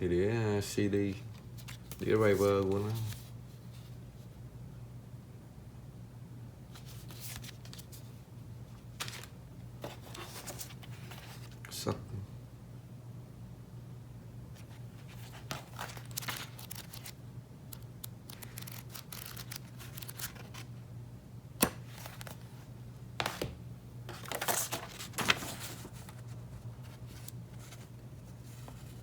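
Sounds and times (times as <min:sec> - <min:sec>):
cardboard and paper rustling: 0:01.5 - 0:03.9, 0:06.8 - 0:08.1, 0:09.0 - 0:11.6, 0:14.6 - 0:20.7, 0:21.8 - 0:22.5, 0:24.1 - 0:29.0.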